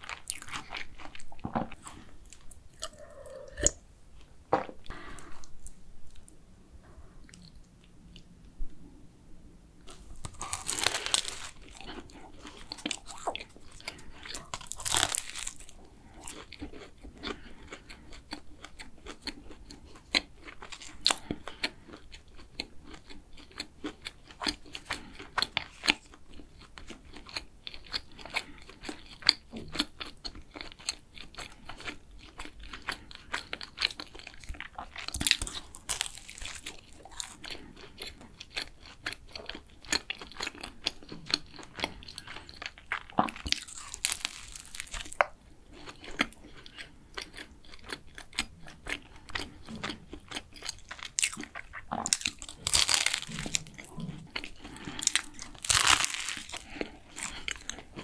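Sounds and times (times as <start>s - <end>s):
chewing crisp pastry: 0.0s - 8.9s, 9.8s - 58.0s
loud crunching bites: 9.9s - 13.5s, 14.2s - 16.5s, 35.1s - 37.6s, 43.4s - 45.2s, 51.0s - 53.9s, 54.7s - 57.8s.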